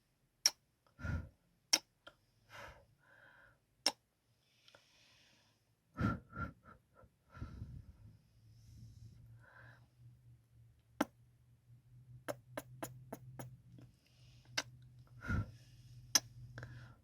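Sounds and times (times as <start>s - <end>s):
soft breaths: 2.1s - 3.6s, 4.3s - 10.2s, 12.8s - 17.0s.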